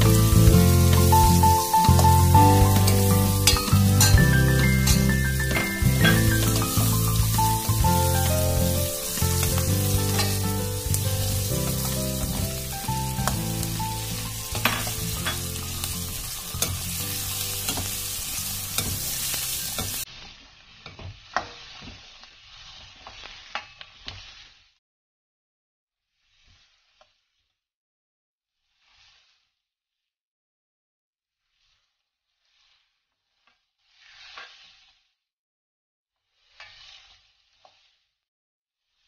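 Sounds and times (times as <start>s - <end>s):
steel ladle scraping a pan: 0.0s - 20.1s, 33.8s - 35.0s, 36.4s - 38.0s
vegetables sizzling in a pan: 0.0s - 24.8s, 26.1s - 27.5s, 28.6s - 29.6s, 31.4s - 35.2s, 36.2s - 38.2s, 38.8s - 39.0s.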